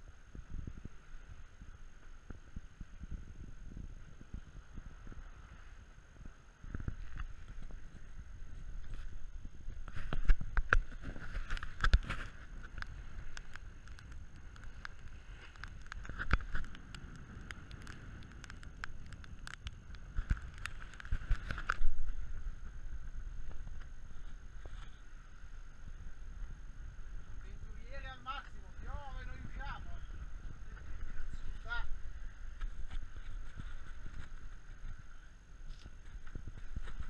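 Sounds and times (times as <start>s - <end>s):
wind and water rumble: 0.0s - 37.0s
knocks and taps on sailboat: 6.6s - 24.0s.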